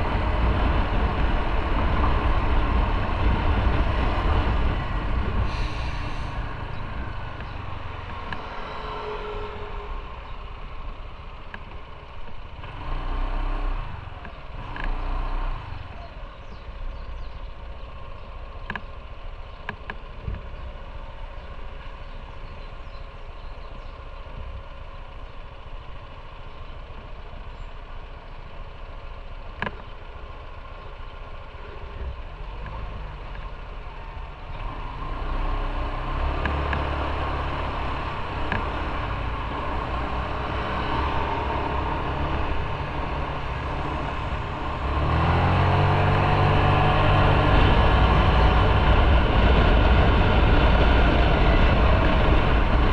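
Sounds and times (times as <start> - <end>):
motorcycle engine idling: 4.5 - 12.7, 15.6 - 34.7.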